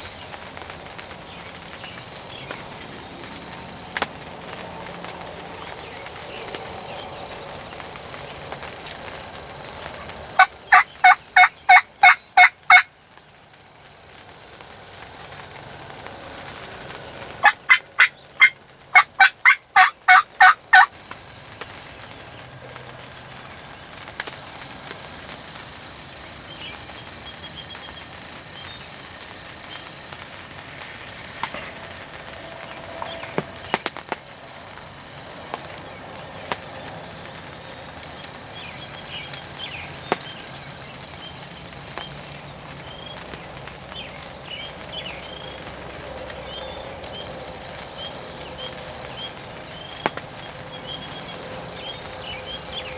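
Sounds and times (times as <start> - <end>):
small birds chirping: 0.0 - 52.9
turkey yelping: 10.4 - 12.9, 17.4 - 20.9.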